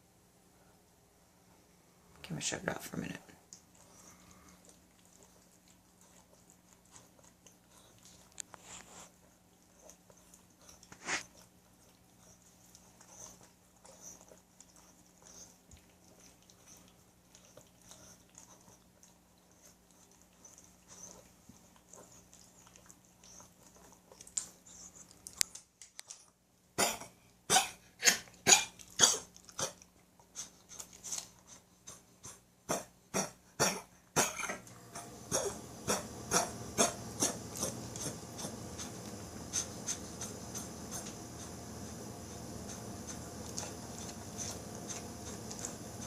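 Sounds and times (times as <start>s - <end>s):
dog coughing: 26.8s - 29.8s, 32.2s - 40.7s.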